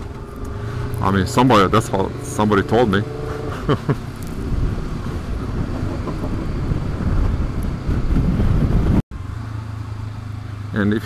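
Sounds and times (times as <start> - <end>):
motorcycle engine running: 0.0 - 10.9
rider vocal sound: 0.6 - 3.7
wind noise: 3.0 - 9.0.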